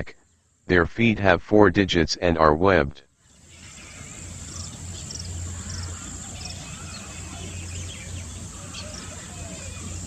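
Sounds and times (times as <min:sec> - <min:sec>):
small birds chirping: 0:00.0 - 0:00.7, 0:03.1 - 0:10.0
steady high hiss: 0:03.2 - 0:10.0.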